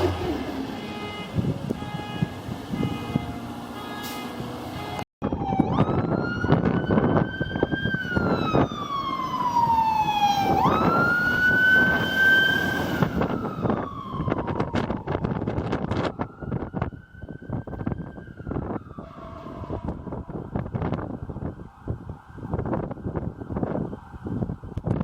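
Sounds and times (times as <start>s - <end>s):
wind buffeting microphone: 0.0s - 3.5s, 4.3s - 25.0s
emergency vehicle siren wailing: 0.0s - 25.0s
street traffic rumble: 0.0s - 25.0s.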